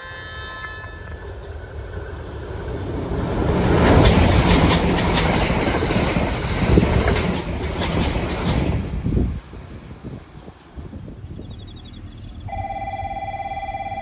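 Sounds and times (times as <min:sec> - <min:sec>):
train rushing past: 0:00.0 - 0:12.8
wheels clacking over rail joints: 0:00.4 - 0:11.0.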